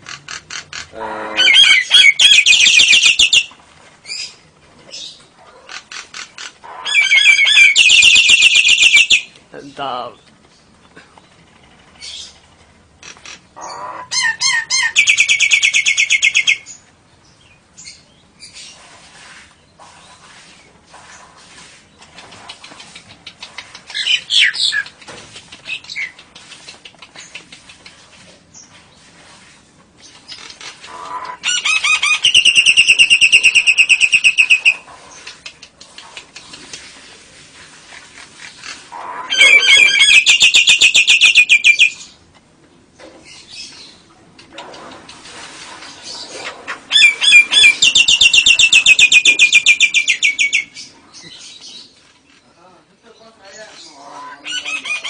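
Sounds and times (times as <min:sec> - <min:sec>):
lovebird chattering trills: 0:38.6 - 0:42.1, 0:46.1 - 0:51.9.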